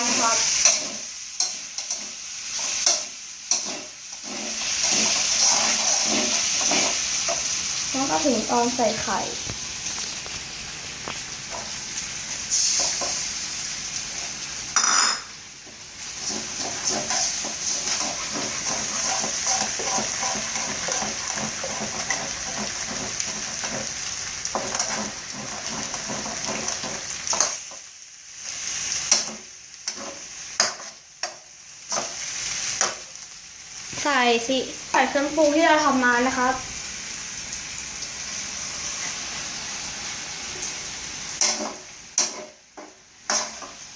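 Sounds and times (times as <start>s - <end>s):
fried rice sizzling in pan: 0.0s - 43.9s
spatula scraping and knocking pan: 0.5s - 7.5s, 14.8s - 27.8s, 29.1s - 32.2s, 41.4s - 43.8s.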